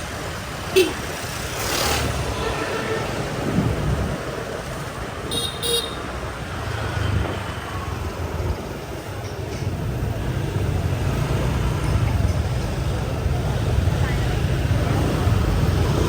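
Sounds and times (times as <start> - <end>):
motorbike traffic rumble: 0.0 - 16.0
horn toots: 0.7 - 1.3, 5.2 - 6.1.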